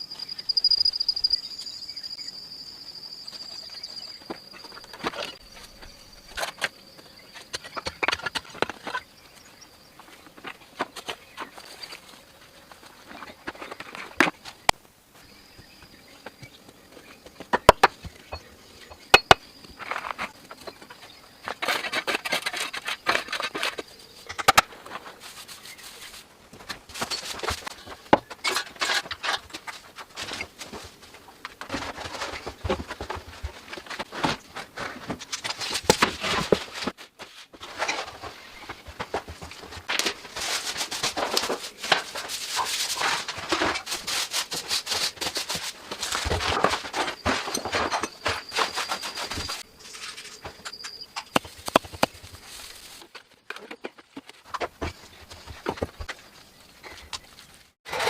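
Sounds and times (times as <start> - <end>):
rough scraping and rustling: 19.6 - 58.0.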